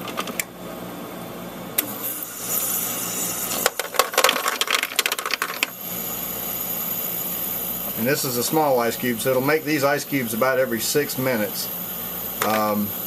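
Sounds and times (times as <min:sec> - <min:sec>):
ice maker humming: 0:00.0 - 0:13.0
ice cubes clattering: 0:03.6 - 0:05.7
ice maker click: 0:12.4 - 0:12.7.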